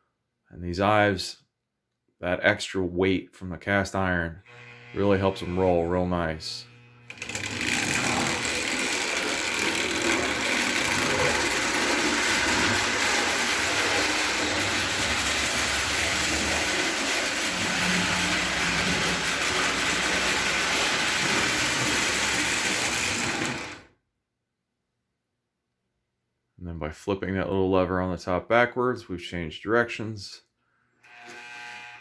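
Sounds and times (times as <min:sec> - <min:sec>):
toy train running on track: 0:07.1 - 0:23.9.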